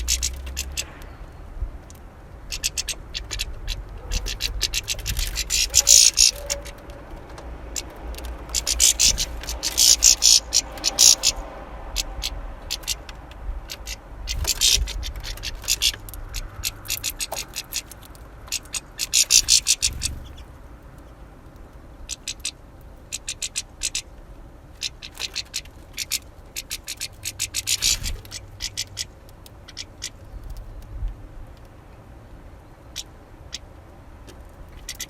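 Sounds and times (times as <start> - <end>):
finches clicking and ticking: 1.8 - 11.4.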